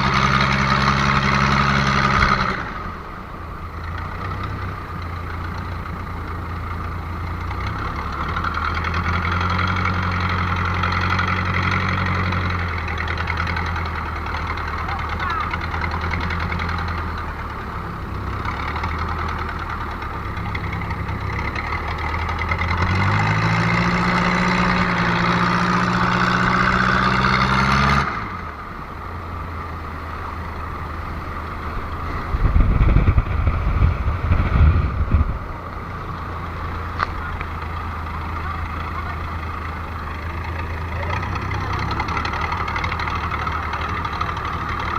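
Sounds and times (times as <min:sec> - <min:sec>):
engine idling and revving: 0:00.0 - 0:44.9
heavy low rumbling thumps: 0:32.2 - 0:37.6.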